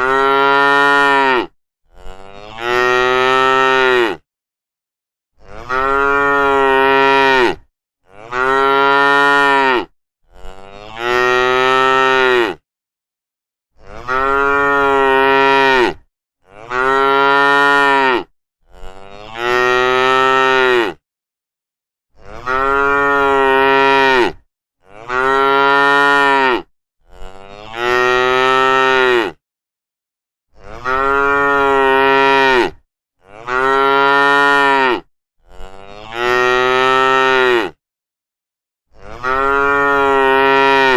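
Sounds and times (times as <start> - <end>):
cow mooing: 0.0 - 4.2, 5.4 - 12.6, 13.8 - 21.0, 22.2 - 29.4, 30.6 - 37.8, 38.9 - 40.9.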